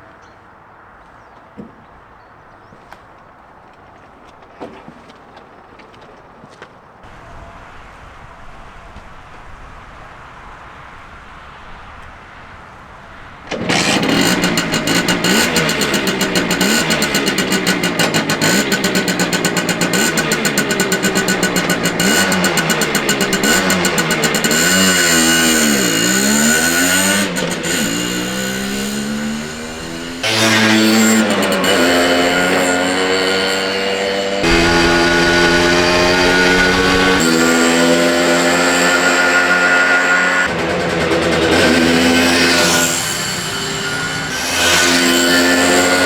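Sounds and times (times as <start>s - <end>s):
moped engine revving: 13.5s - 46.0s.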